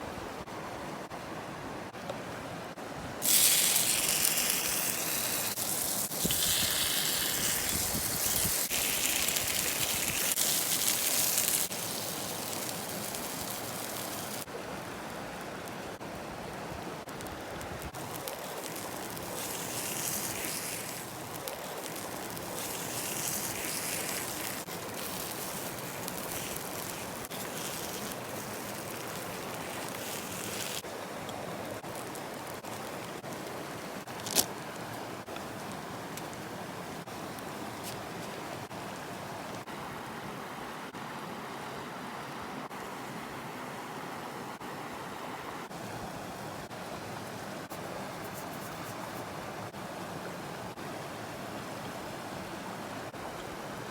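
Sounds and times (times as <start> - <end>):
batter sizzling in hot pan: 3.2 - 14.5, 17.8 - 30.9.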